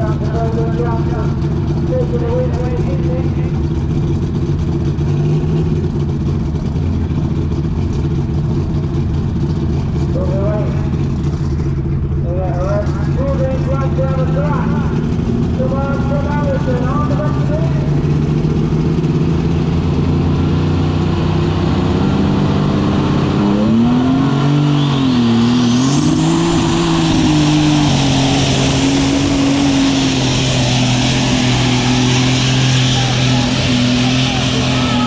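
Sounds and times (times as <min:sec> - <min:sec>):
diesel engine running hard: 0:00.0 - 0:35.0
high whistle climbing: 0:23.8 - 0:28.2.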